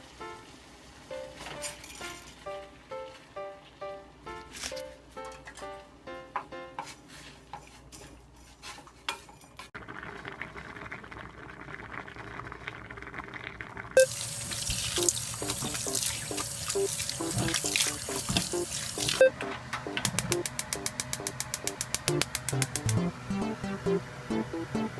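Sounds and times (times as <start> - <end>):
background music: 1.1 - 6.9, 15.0 - 24.9
tap water running: 14.0 - 19.2.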